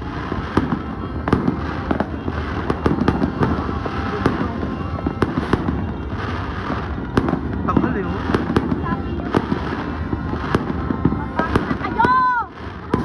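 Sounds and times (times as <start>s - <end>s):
distant fireworks: 0.0s - 13.0s
firework bangs: 0.0s - 13.0s.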